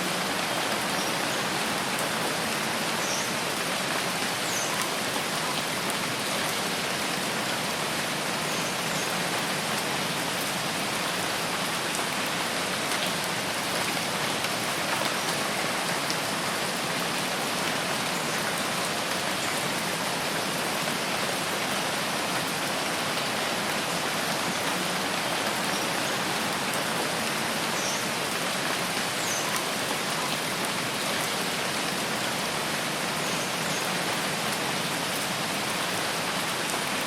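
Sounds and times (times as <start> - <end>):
rain on leaves: 0.0 - 37.0.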